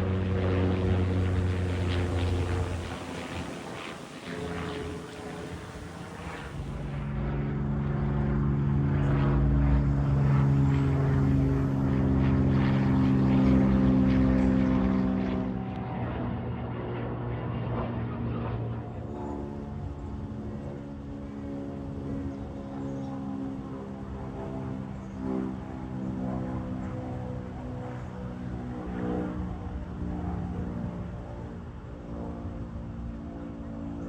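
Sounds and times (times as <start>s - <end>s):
propeller airplane engines droning: 0.0s - 34.0s.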